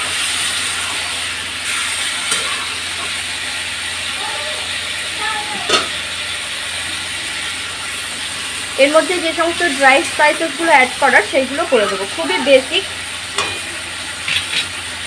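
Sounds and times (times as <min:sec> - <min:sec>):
chicken and onions sizzling: 0:00.0 - 0:15.0
metal spatula stirring: 0:13.4 - 0:14.7.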